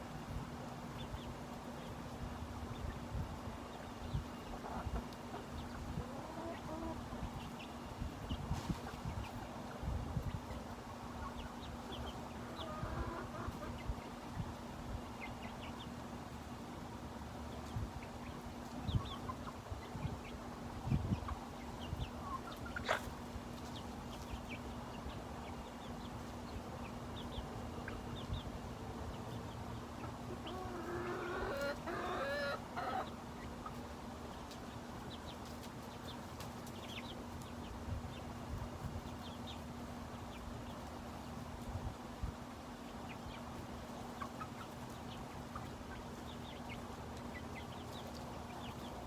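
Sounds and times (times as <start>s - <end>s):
chickens clucking: 0.2s - 49.0s
chicken drawn-out call: 30.3s - 33.2s.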